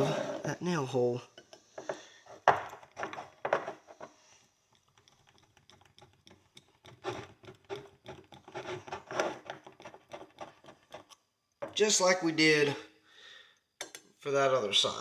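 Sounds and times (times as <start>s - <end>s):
pick scratching and clicking: 4.7s - 11.8s.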